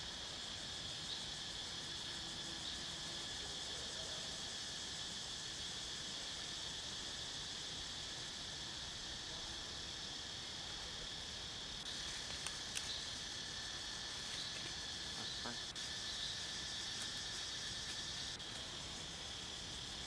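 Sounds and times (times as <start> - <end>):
background hiss: 0.0 - 20.0
insects droning: 0.0 - 20.0
faint clicks: 12.2 - 13.0.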